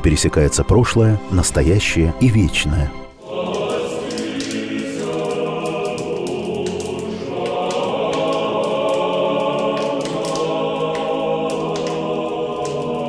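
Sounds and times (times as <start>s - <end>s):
choir chanting held notes: 3.2s - 13.0s.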